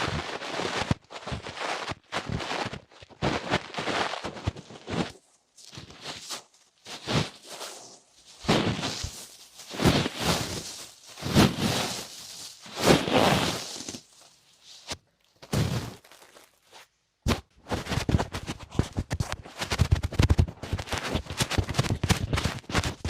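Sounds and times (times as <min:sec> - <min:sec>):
scratching rustling strokes: 0:00.0 - 0:16.9
crackling taps: 0:18.4 - 0:23.0.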